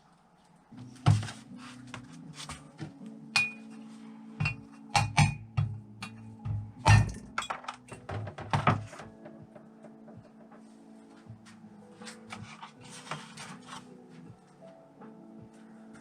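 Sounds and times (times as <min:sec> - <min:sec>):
background music: 0:00.0 - 0:16.0
metal parts and tools clinking: 0:06.8 - 0:09.1.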